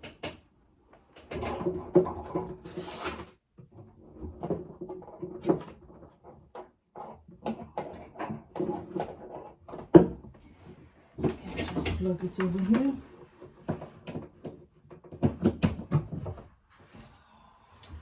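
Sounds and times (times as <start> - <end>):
plastic charger clicks and knocks: 13.7 - 16.3.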